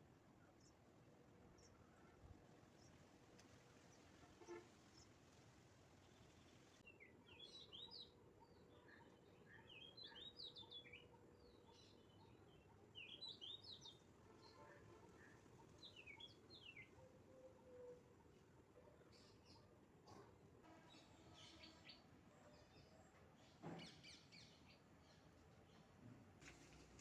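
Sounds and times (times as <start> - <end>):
low background hiss: 0.0 - 20.0
faint songbird singing: 5.9 - 26.0.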